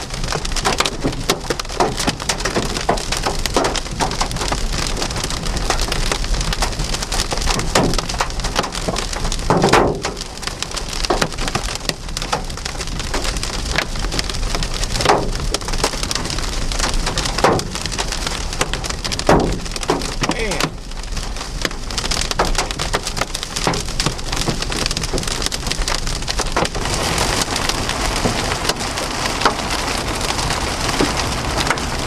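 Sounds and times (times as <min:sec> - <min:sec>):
rain and hail on vehicle: 0:00.0 - 0:32.0
loud thuds on vehicle: 0:19.2 - 0:20.1.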